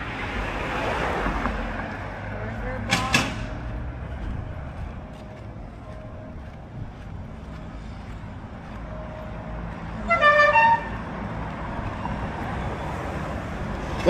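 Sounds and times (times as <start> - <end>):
car rumbling on road: 0.0 - 14.0
car horn: 10.0 - 11.1.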